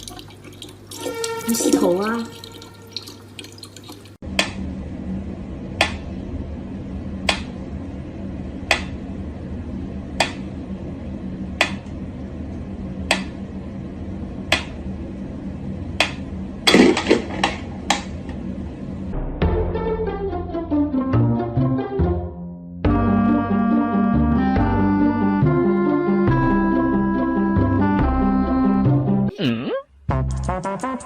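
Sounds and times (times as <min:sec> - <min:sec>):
steady low hum: 0:04.2 - 0:19.5.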